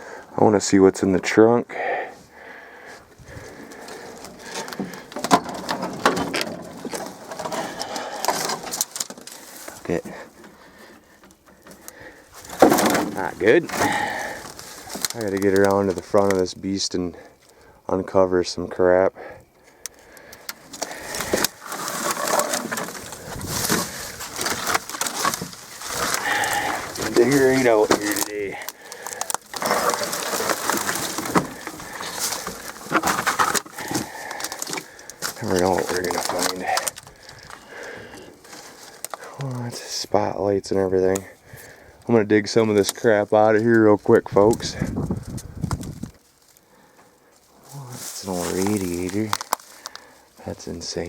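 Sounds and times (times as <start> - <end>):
debris being shifted by hand: 2.9 - 16.5, 19.9 - 39.9, 42.6 - 51.0
small cracks and knocks: 3.6 - 16.5, 19.7 - 39.6, 44.4 - 47.2, 48.0 - 50.2.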